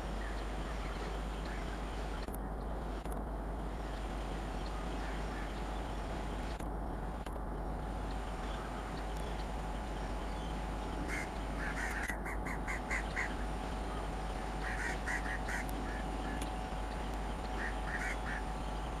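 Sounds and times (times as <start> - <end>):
steady hum: 0.0 - 19.0
bird calls in quick runs: 14.4 - 16.4, 17.5 - 18.8.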